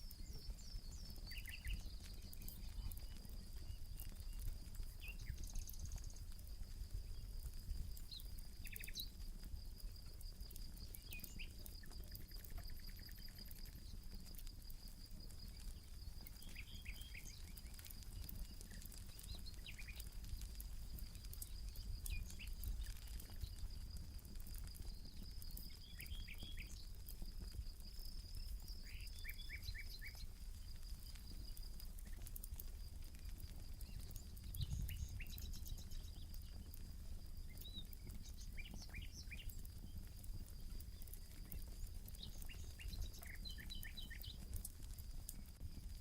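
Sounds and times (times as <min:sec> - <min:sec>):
birds chirping: 0:00.0 - 0:06.3, 0:15.3 - 0:23.7, 0:24.6 - 0:27.0, 0:33.8 - 0:36.8, 0:37.4 - 0:44.6
campfire crackling and popping: 0:00.0 - 0:46.0.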